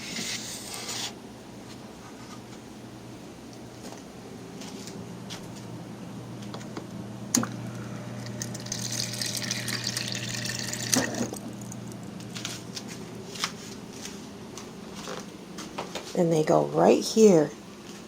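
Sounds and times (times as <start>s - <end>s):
water running with low hum: 3.5s - 15.2s.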